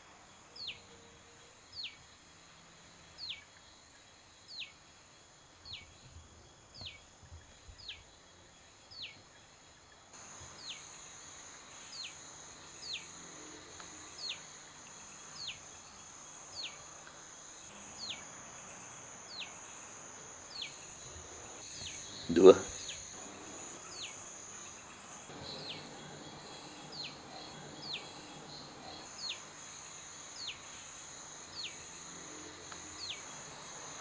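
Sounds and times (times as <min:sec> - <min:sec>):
high insect buzz: 0:10.1 - 0:34.0.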